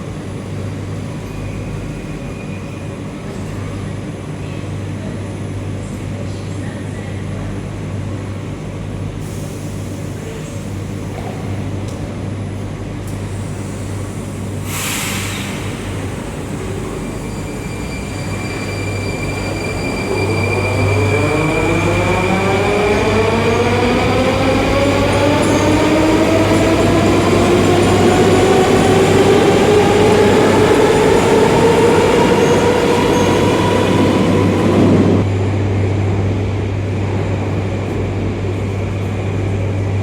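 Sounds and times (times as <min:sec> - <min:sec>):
train low hum: 0:00.0 - 0:40.0
short hiss: 0:14.6 - 0:16.0.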